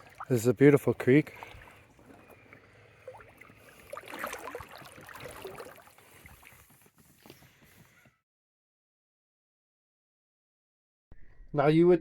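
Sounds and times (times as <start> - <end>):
creek water trickling and splashing: 0.0 - 7.3.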